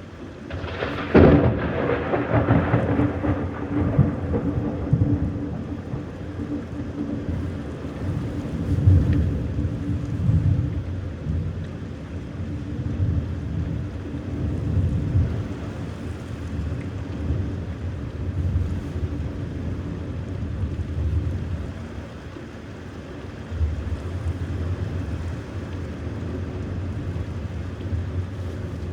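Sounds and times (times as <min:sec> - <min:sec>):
steady rain: 0:00.0 - 0:28.9
thunder rumbling: 0:00.4 - 0:10.8.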